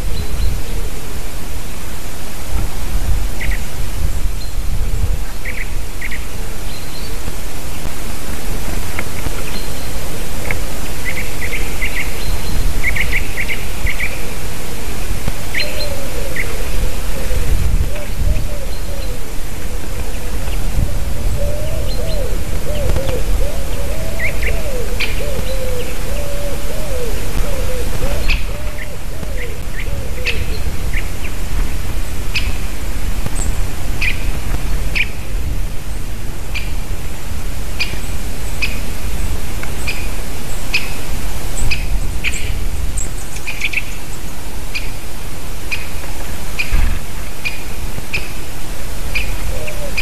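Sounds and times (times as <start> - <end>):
small birds chirping: 15.5 - 31.4.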